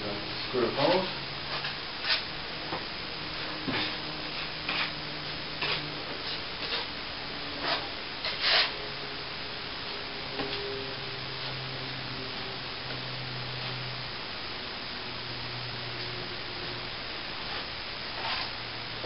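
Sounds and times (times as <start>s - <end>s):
faint steady hum: 0.0s - 19.0s
hand tools scraping and tapping: 5.6s - 6.9s.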